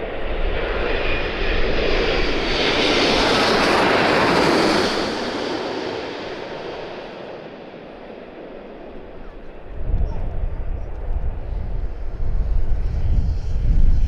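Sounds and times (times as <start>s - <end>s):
jet airliner passing overhead: 0.0s - 14.0s.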